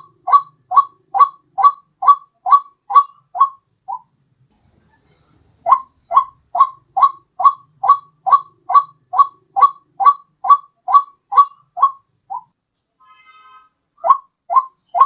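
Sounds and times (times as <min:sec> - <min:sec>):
bird calling rising notes: 0:14.0 - 0:15.0.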